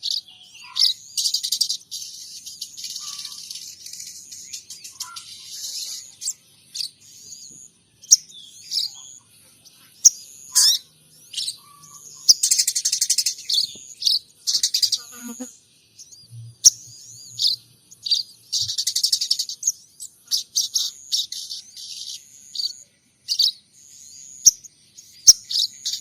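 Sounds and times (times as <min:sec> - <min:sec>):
songbird chirping and trilling: 0:00.0 - 0:26.0.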